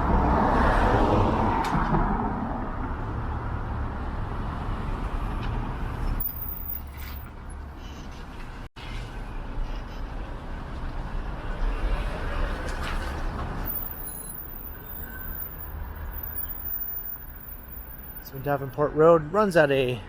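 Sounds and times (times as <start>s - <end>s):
vehicle passing close by: 0.0s - 6.2s
rumble of engines and tyres: 0.0s - 18.9s.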